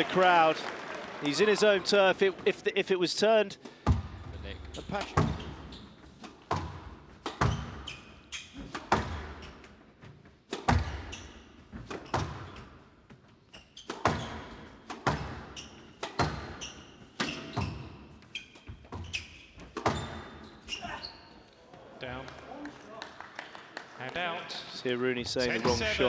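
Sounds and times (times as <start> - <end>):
ball thudding against walls: 3.7 - 9.6, 10.5 - 12.8, 13.8 - 18.0, 18.8 - 20.5
squash ball hitting rackets: 3.7 - 9.8, 10.5 - 21.0.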